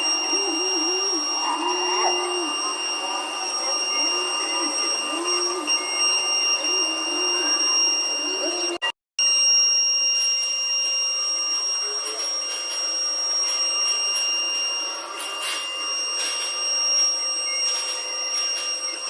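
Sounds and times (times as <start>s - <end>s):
power tool motor whining: 0.0s - 8.8s.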